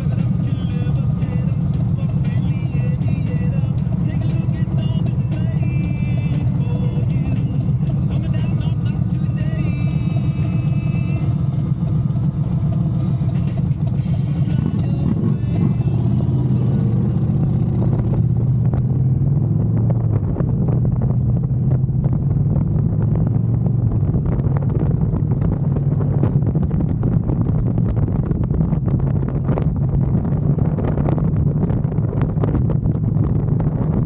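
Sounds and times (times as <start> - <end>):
motorcycle engine drone: 0.0 - 34.0.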